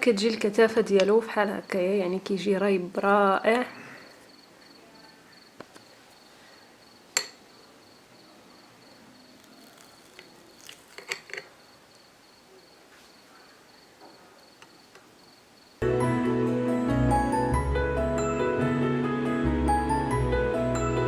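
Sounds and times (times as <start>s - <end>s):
high-pitched cricket chirping: 3.9s - 15.8s.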